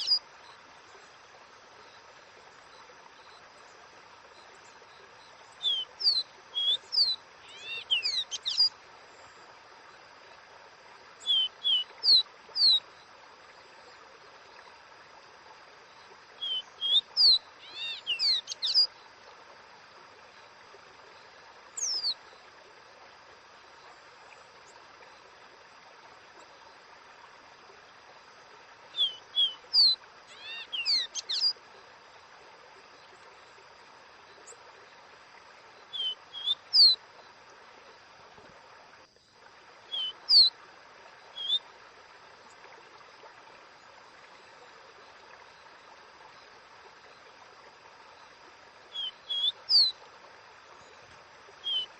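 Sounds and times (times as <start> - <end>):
bird whistling song: 0.0 - 0.2, 5.6 - 8.7, 11.2 - 12.8, 16.4 - 18.9, 21.8 - 22.2, 28.9 - 31.6, 35.9 - 37.0, 39.9 - 40.5, 41.4 - 41.6, 48.9 - 50.0, 51.6 - 51.9
faint hiss: 0.0 - 51.9.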